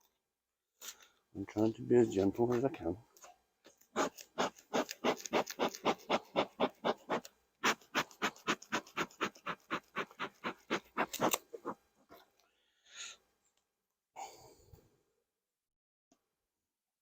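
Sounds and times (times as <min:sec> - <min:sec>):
scratchy strokes: 0:03.9 - 0:12.2.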